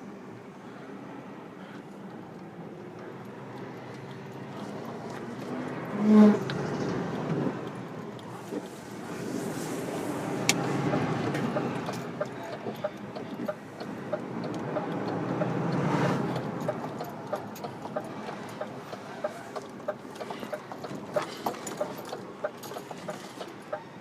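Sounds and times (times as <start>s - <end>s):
lorry engine running: 6.6s - 24.0s
regular ticking: 10.9s - 23.8s.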